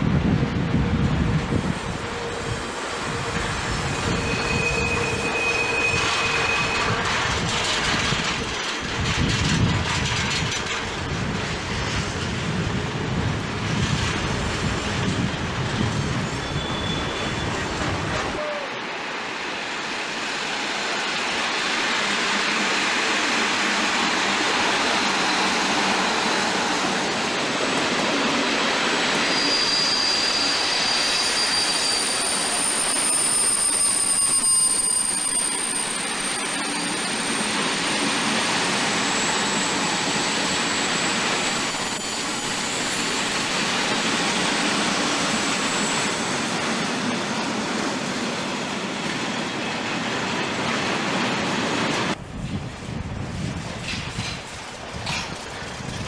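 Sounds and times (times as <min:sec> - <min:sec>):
freight train wheels on rails: 0:00.0 - 0:56.0
high wheel squeals: 0:03.6 - 0:07.1, 0:16.2 - 0:18.7, 0:24.8 - 0:27.2, 0:28.8 - 0:46.7.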